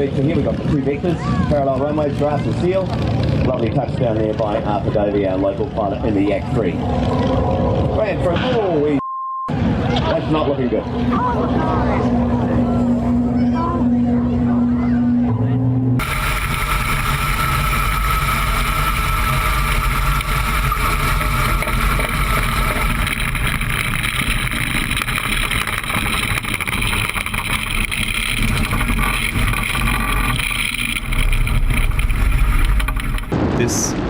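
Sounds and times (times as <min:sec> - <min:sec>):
aircraft engine droning: 0:09.6 - 0:33.4.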